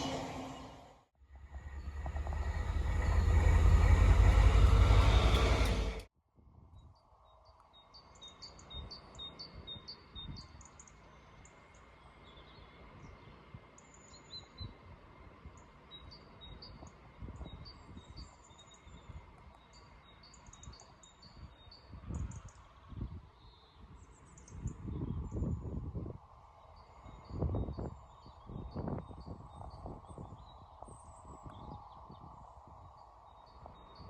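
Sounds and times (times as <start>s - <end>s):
faint low rumbling: 1.3s - 6.1s
small birds chirping and trilling: 15.5s - 25.9s.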